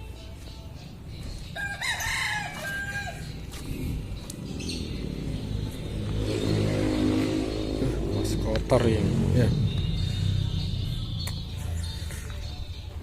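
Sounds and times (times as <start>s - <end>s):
rooster crowing: 1.6s - 3.4s.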